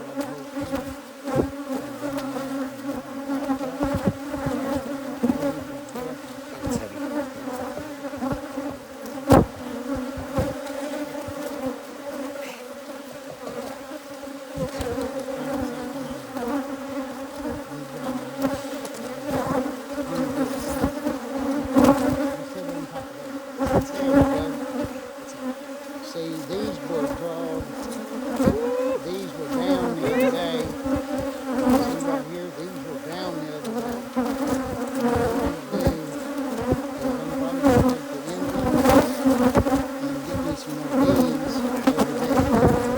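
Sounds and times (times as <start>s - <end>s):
honeybees buzzing: 0.0s - 42.9s
knocks and clicks from handling hive: 14.6s - 16.6s.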